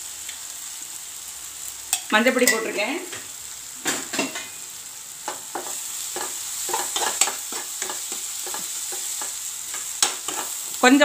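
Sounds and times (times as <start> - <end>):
masala sizzling in pan: 0.0 - 11.0
metal spatula scraping pan: 5.5 - 10.8.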